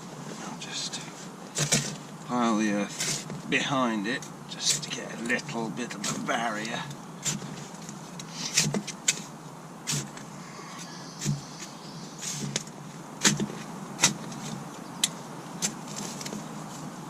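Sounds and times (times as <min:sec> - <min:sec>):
shovel scraping into soil: 0:01.2 - 0:02.0, 0:02.7 - 0:03.4, 0:06.0 - 0:14.6, 0:15.6 - 0:16.9.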